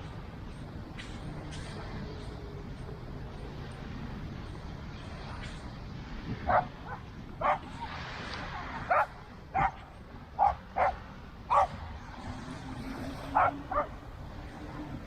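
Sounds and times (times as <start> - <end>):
road traffic noise: 0.0 - 15.0
dog barking: 6.5 - 7.8, 8.6 - 9.8, 10.4 - 11.8, 13.3 - 14.0.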